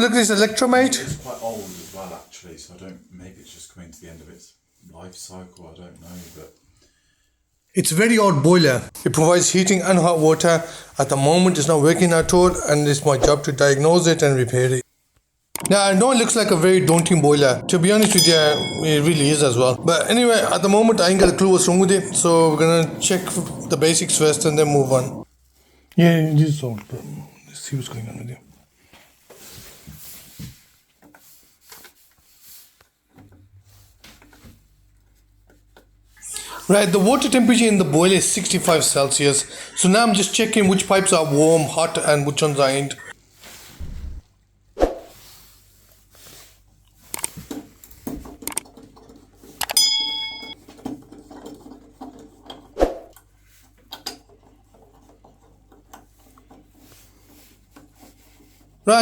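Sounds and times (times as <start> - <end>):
object handling rubbing and knocks: 10.0 - 13.9, 45.0 - 59.0
low steady hum: 15.8 - 25.2
sharp thumps: 43.8 - 44.2
metallic clink: 49.7 - 50.6.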